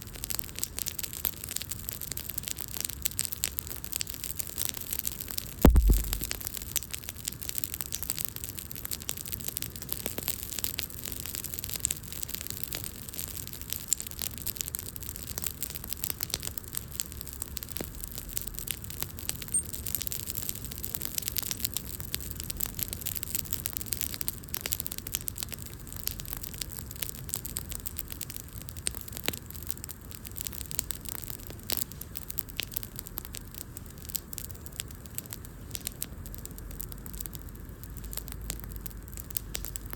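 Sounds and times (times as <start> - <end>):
wood fire crackling and popping: 0.1 - 39.9
soft hiss: 5.6 - 6.4.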